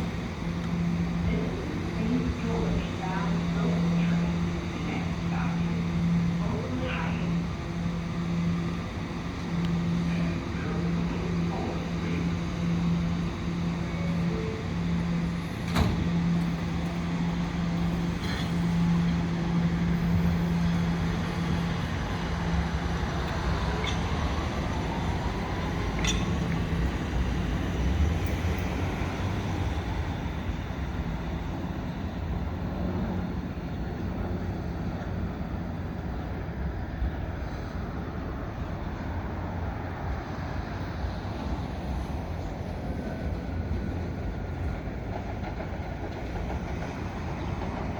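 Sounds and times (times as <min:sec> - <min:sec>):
subway train low hum: 0:00.0 - 0:47.9.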